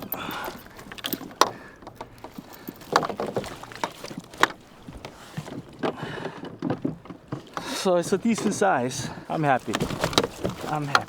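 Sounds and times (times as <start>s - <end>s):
sharp knocks against kayak: 9.5s - 11.0s.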